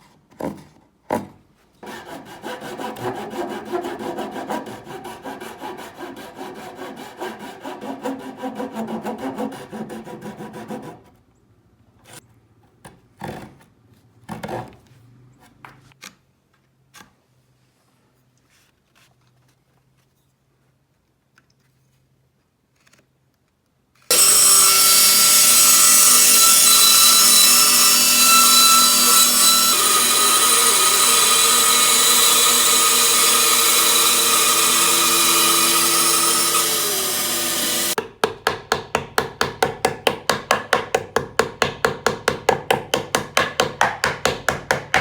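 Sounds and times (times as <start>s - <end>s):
power tool cutting wood: 24.1s - 38.0s.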